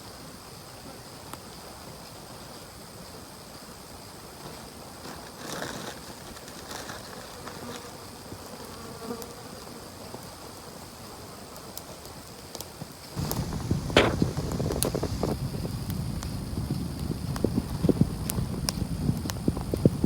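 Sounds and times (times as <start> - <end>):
insects buzzing: 4.5 - 11.5, 13.1 - 20.0
brief rustle: 13.2 - 15.4.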